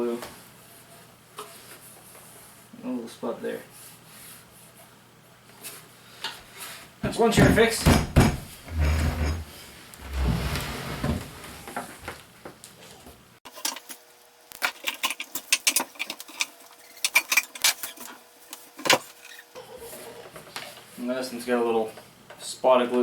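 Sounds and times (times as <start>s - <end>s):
wooden chair knocks and clicks: 7.0s - 9.4s
wooden chair thumps: 7.0s - 9.4s.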